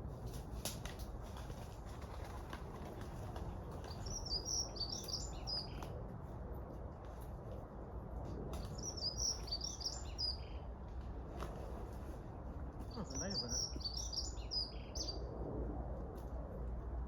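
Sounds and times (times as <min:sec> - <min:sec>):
songbird chirping: 0:03.9 - 0:05.8, 0:08.7 - 0:10.7, 0:12.9 - 0:15.3.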